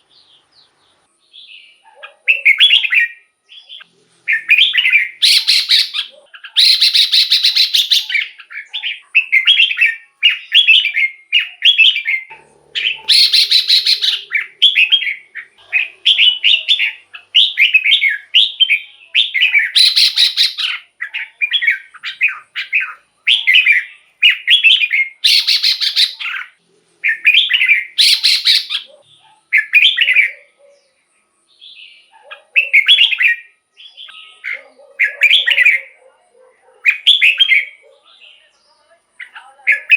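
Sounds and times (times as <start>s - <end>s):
bird whistled phrases: 1.5s - 30.6s, 32.6s - 36.0s, 36.9s - 37.9s, 39.2s - 39.9s
harsh chattering bird call: 2.0s - 30.6s.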